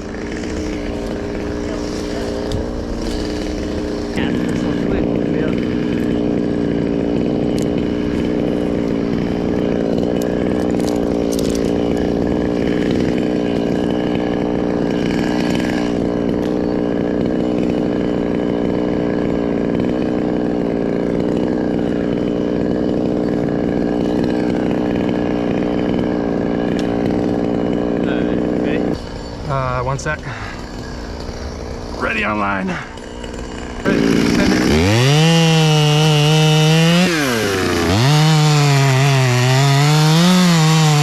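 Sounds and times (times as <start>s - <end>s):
chainsaw cutting hard wood: 0.0s - 41.0s.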